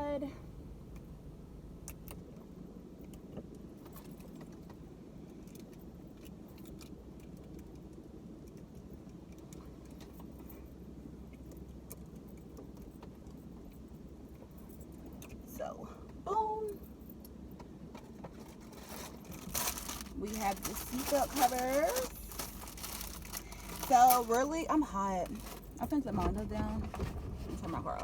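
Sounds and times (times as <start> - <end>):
plastic accessories clicking and rattling: 18.0 - 24.6.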